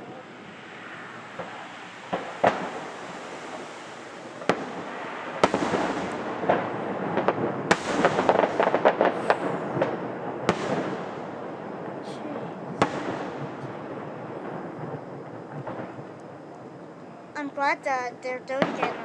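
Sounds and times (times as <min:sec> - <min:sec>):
distant fireworks exploding: 0:00.0 - 0:19.0
steady background rumble: 0:00.0 - 0:19.0.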